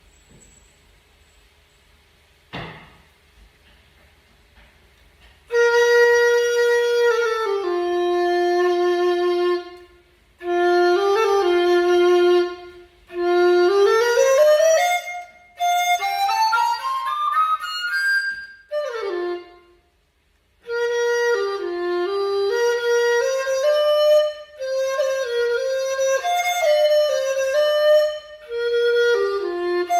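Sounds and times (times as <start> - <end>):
short thump: 2.5 - 3.1
bamboo flute playing: 5.5 - 29.9.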